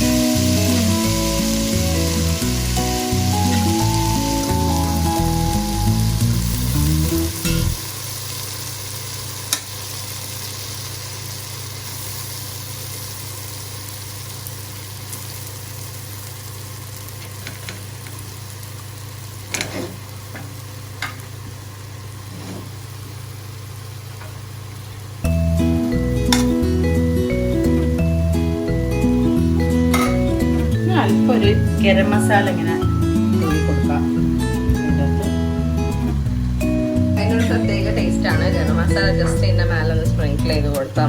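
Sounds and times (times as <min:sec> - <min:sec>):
background music: 0:00.0 - 0:07.8, 0:25.3 - 0:41.0
food sizzling in a pot: 0:00.0 - 0:41.0
steady low hum: 0:19.8 - 0:41.0.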